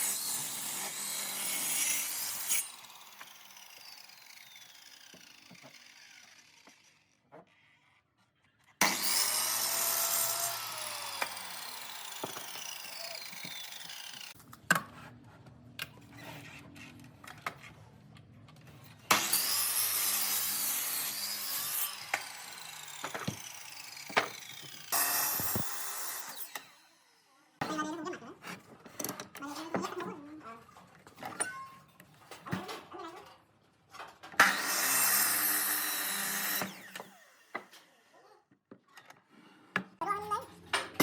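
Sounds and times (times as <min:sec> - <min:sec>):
power tool motor whining: 0:00.0 - 0:07.2, 0:08.8 - 0:14.4, 0:19.1 - 0:26.8.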